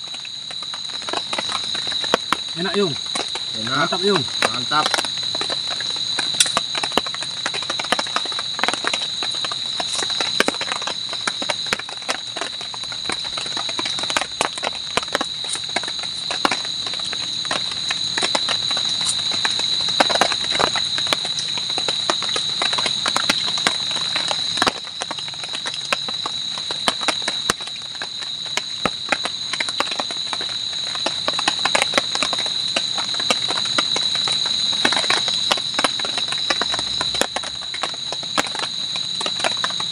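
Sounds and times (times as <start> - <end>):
night insects droning: 0.0 - 39.9
chewing and smacking: 1.0 - 25.8.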